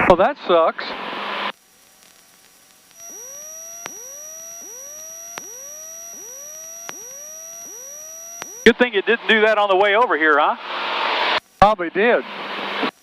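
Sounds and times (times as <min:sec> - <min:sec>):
electronic alert tone with rising chirp: 0:03.0 - 0:08.8.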